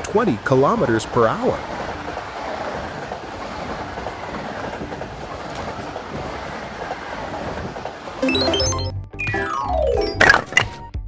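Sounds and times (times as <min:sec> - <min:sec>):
high-speed train passing: 0:00.0 - 0:08.8.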